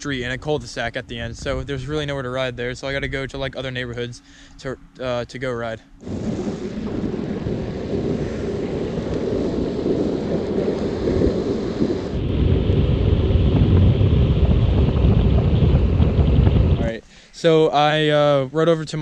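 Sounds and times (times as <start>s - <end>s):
wind buffeting microphone: 0.0s - 5.0s, 6.0s - 17.0s.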